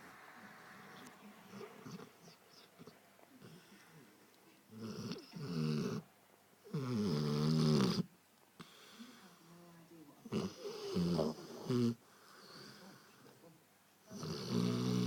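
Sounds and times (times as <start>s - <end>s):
dog snoring: 0.8s - 3.8s, 4.7s - 6.0s, 6.7s - 8.7s, 10.2s - 13.2s, 14.1s - 15.0s.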